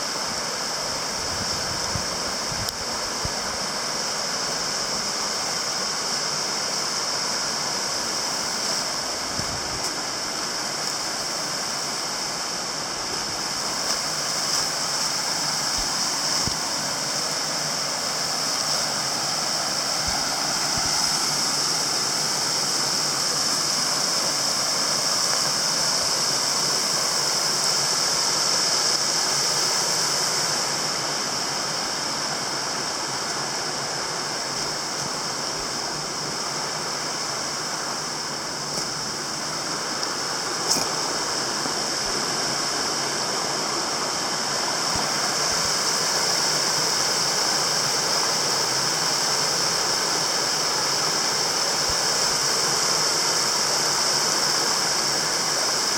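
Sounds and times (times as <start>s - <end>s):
stream water rushing: 0.0s - 55.9s.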